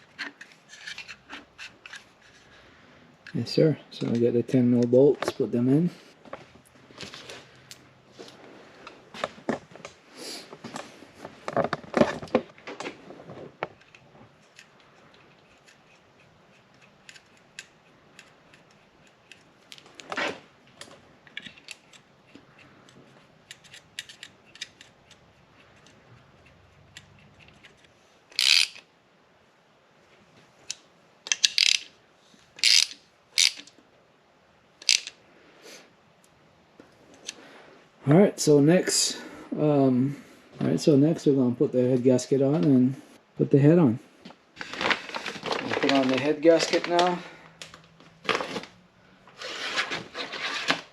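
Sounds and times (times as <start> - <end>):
small metal parts clinking: 27.2 - 28.8, 31.3 - 31.9, 32.6 - 33.7, 34.8 - 35.2
hand ratchet clicking: 28.3 - 28.8, 31.3 - 31.9, 32.6 - 33.7, 34.8 - 35.1.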